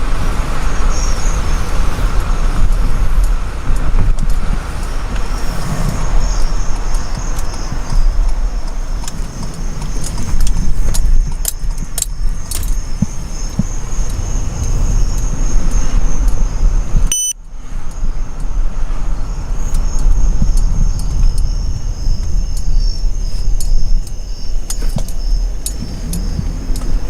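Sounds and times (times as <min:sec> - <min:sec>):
car road rumble: 0:00.0 - 0:27.0
light clicks and rattles: 0:02.7 - 0:15.3, 0:19.6 - 0:27.0
short electronic beep: 0:17.1 - 0:17.4.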